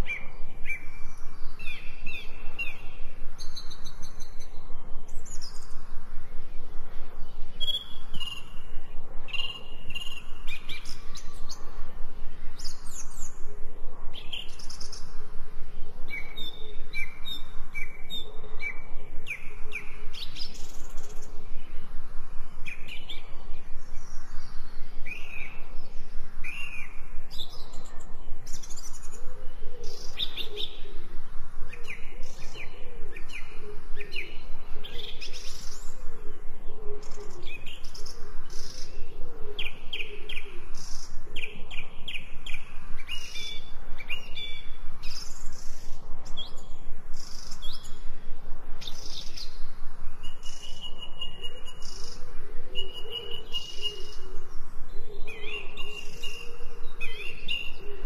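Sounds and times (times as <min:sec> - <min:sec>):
birds chirping and singing: 0:00.0 - 0:15.2, 0:15.8 - 0:48.2, 0:48.8 - 0:58.0
lower warbling bird call: 0:48.8 - 0:58.0.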